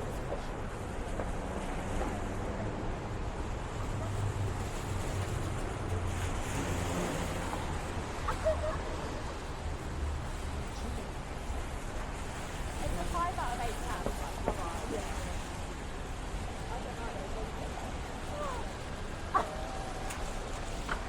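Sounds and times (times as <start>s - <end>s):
traffic rumble: 0.0s - 21.0s
tyres hissing on wet pavement: 0.1s - 21.0s.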